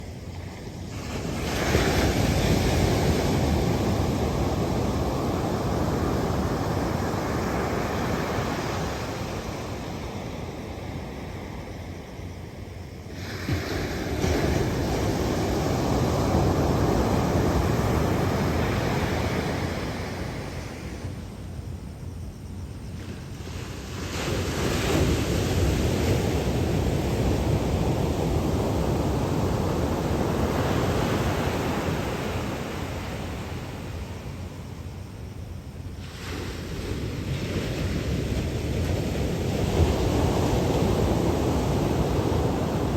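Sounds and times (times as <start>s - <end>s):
wind rumbling on microphone: 0.0s - 42.9s
ocean surf rushing: 23.7s - 34.4s, 36.0s - 42.9s.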